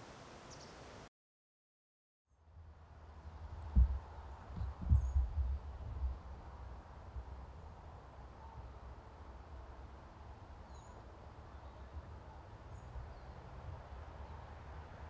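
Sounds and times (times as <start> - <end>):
faint hiss: 0.0 - 1.1
small bird chirping: 0.5 - 0.8.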